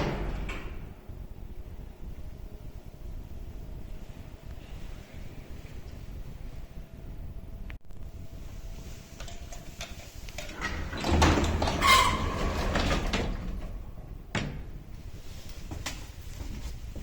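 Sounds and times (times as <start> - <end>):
sliding lift doors moving: 8.8 - 15.4
door squeal: 10.6 - 13.6.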